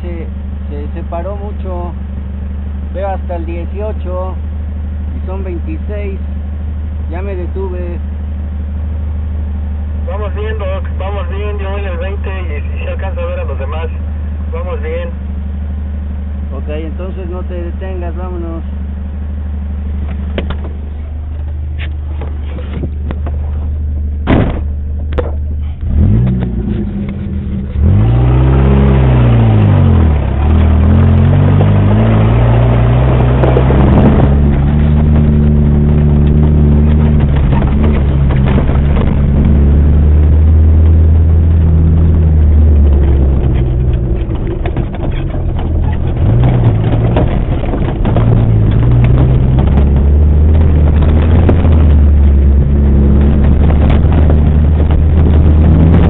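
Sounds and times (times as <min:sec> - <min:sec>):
off-road vehicle engine: 0:00.0 - 0:56.0
sharp knocks: 0:24.2 - 0:25.4.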